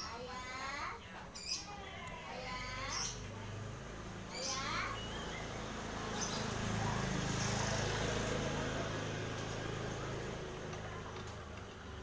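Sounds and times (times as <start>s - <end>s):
engine running: 5.0s - 12.0s.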